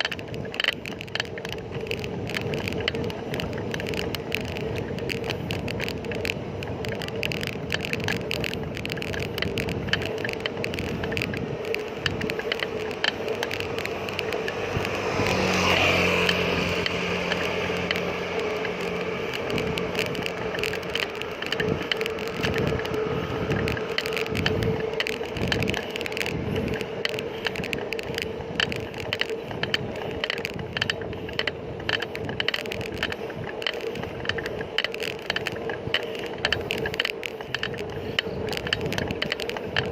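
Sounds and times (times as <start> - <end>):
bicycle rattles and clicks: 0.0 - 39.9
bicycle rolling on road: 0.0 - 39.9
motor vehicle passing: 7.5 - 34.4.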